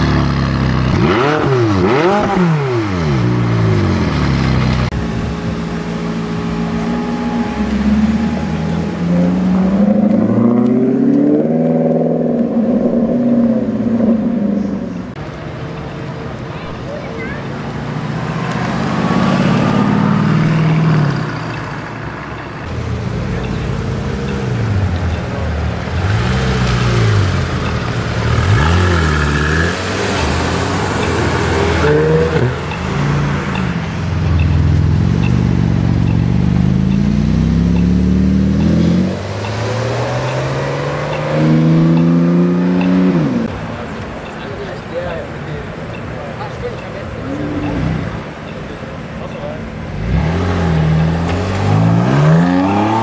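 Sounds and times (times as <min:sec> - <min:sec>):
sports car engine revving: 0:00.0 - 0:15.2, 0:22.7 - 0:43.6, 0:49.6 - 0:53.0.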